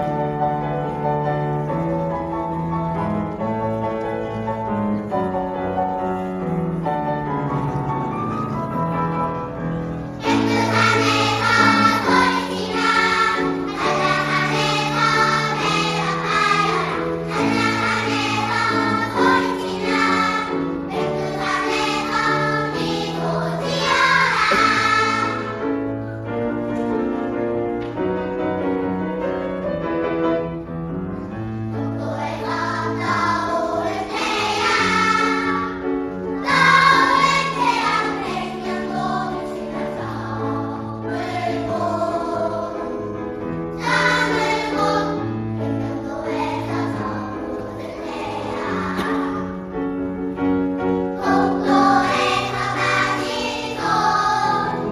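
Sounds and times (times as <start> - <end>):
choir singing: 10.2 - 25.9, 31.7 - 49.7, 51.0 - 54.9.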